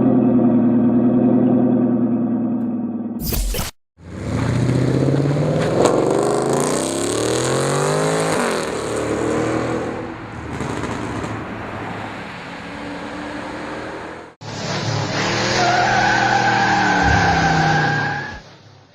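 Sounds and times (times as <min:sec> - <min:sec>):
car engine accelerating hard: 0:04.0 - 0:18.1.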